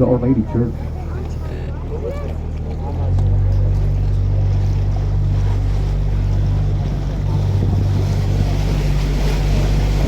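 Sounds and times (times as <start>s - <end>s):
boat engine droning: 0.0s - 10.0s
wind noise on microphone: 4.6s - 10.0s.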